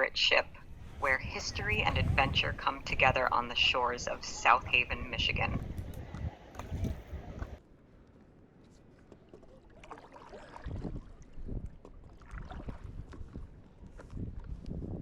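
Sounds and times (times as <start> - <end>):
wind buffeting microphone: 0.0 - 7.6, 10.6 - 15.0
water sloshing and splashing: 9.0 - 14.5.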